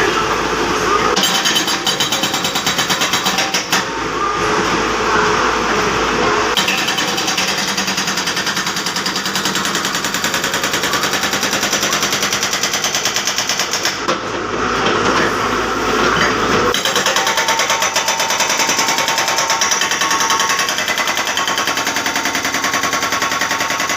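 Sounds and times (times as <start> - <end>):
hydraulic breaker hammering: 1.2 - 3.9, 6.6 - 15.1, 16.7 - 23.9.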